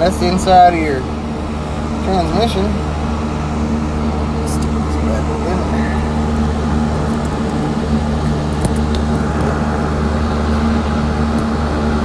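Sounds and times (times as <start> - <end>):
electric fan humming: 0.0 - 12.0.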